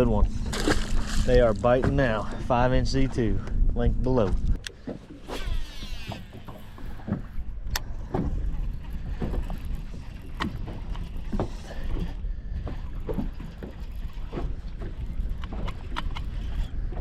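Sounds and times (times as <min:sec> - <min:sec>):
wind rumble on microphone: 0:00.0 - 0:04.7, 0:05.3 - 0:17.0
boat and fishing gear knocks: 0:08.0 - 0:08.4.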